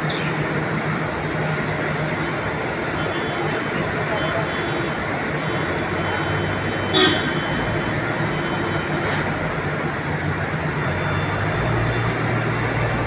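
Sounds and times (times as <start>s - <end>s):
vehicle rumbling in motion: 3.7s - 13.0s.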